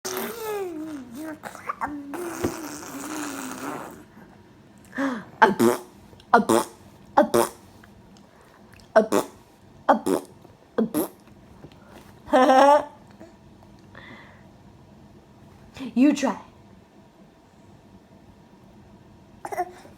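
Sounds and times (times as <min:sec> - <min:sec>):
baby squealing and grunting: 0:00.0 - 0:04.1
baby blowing raspberry: 0:00.0 - 0:04.2, 0:05.4 - 0:07.7, 0:09.0 - 0:11.2.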